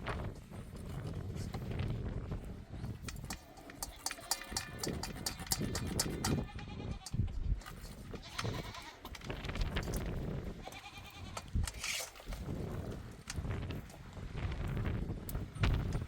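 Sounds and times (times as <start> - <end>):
goats bleating: 3.8 - 7.2, 8.1 - 9.1, 10.6 - 11.5.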